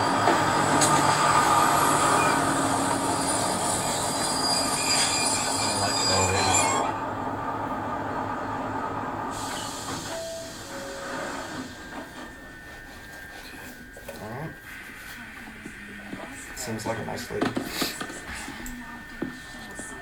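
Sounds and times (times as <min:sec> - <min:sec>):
train wheels squealing: 0:00.0 - 0:07.0
train rumbling on rails: 0:00.0 - 0:12.3.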